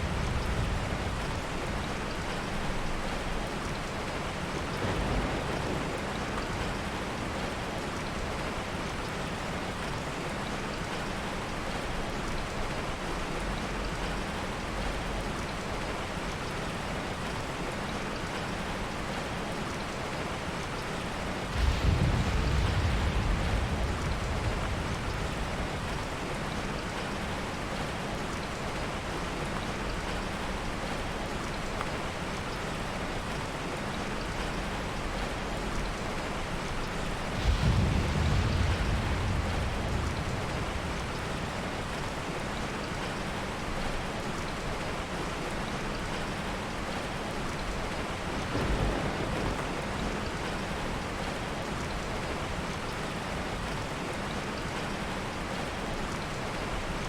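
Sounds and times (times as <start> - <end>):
thunder rumble: 0.0 - 3.0, 4.2 - 8.6, 21.3 - 27.6, 36.7 - 43.1, 48.3 - 52.9
heavy rain: 0.0 - 57.0.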